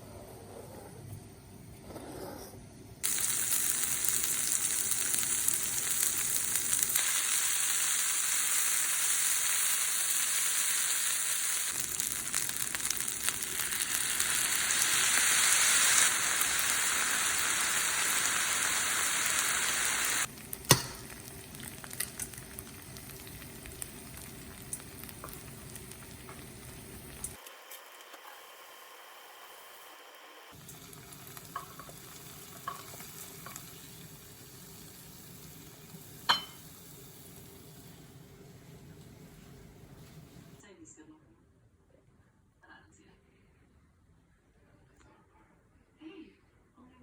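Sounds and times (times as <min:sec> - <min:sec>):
food sizzling in a pan: 0:03.0 - 0:40.6.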